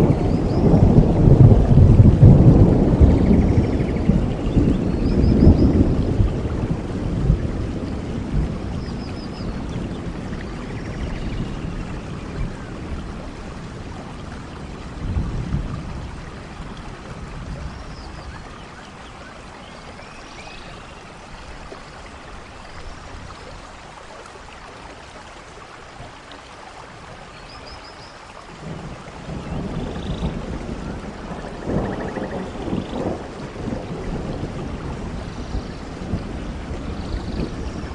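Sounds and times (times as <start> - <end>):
low thunder rumbles: 0.0 - 18.5, 28.6 - 37.9
steady rain falling: 0.0 - 37.9.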